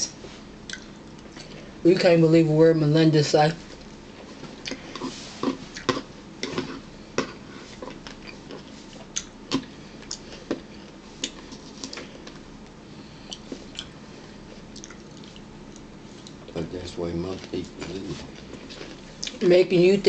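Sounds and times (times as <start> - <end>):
wet chewing smacks: 14.7 - 16.4.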